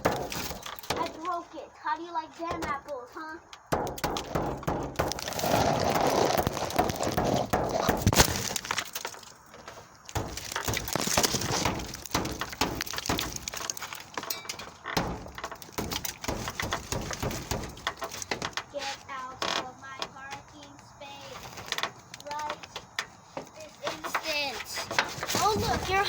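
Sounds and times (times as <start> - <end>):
glass cracking and breaking: 0.0 - 1.3, 3.6 - 18.6
metal striking windshield: 0.0 - 1.5, 2.4 - 3.0, 3.6 - 23.2, 23.8 - 26.0.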